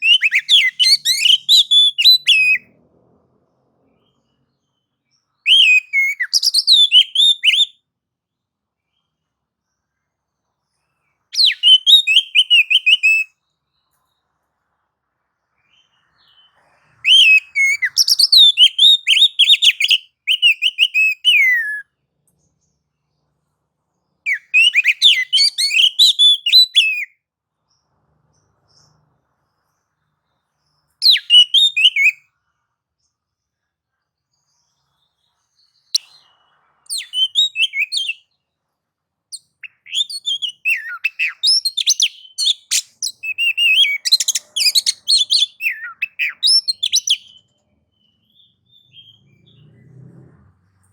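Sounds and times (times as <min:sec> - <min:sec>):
bird singing whistled phrases: 0:00.0 - 0:02.7, 0:05.4 - 0:07.8, 0:11.4 - 0:13.4, 0:15.7 - 0:21.9, 0:24.3 - 0:27.1, 0:31.0 - 0:32.2, 0:35.6 - 0:38.4, 0:39.3 - 0:49.7.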